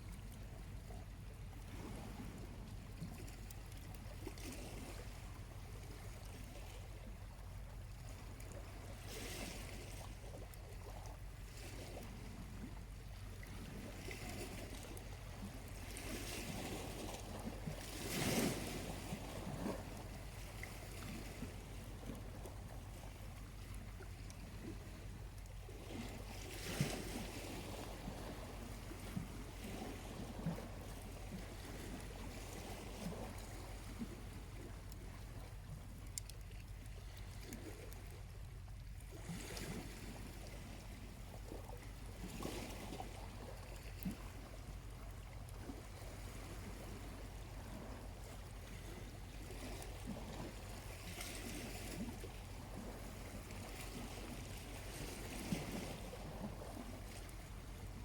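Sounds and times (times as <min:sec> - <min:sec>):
small waves washing onto beach: 0:00.0 - 0:58.0.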